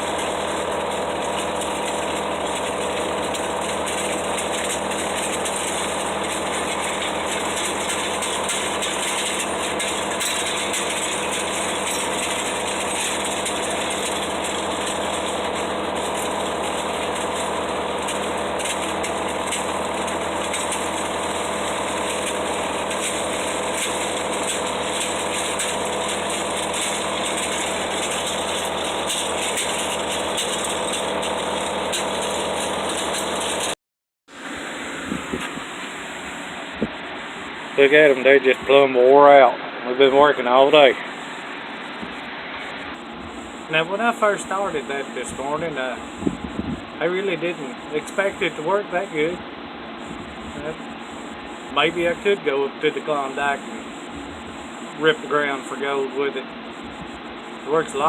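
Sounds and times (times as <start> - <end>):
blade scraping through gravel: 0.0 - 33.8
riding lawn mower engine running: 0.0 - 58.0.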